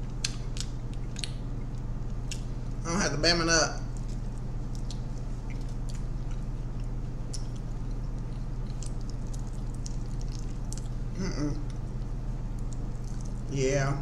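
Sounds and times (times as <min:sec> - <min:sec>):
wet chewing: 0:00.0 - 0:02.6, 0:03.9 - 0:13.5
low hum: 0:00.0 - 0:14.0
person humming: 0:11.1 - 0:11.7.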